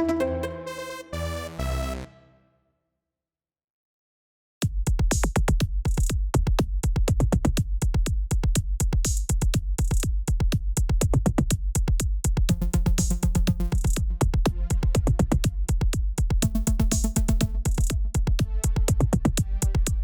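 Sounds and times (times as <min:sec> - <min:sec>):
bass: 0:00.0 - 0:02.1, 0:12.5 - 0:20.0
sustained synth notes: 0:00.0 - 0:02.2
drum-machine beat: 0:04.6 - 0:20.0.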